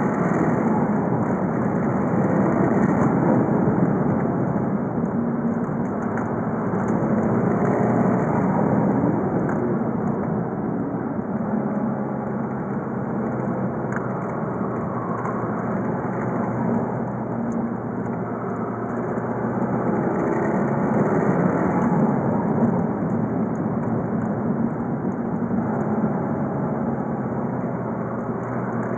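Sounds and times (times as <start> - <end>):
diesel car engine running: 0.0 - 28.9.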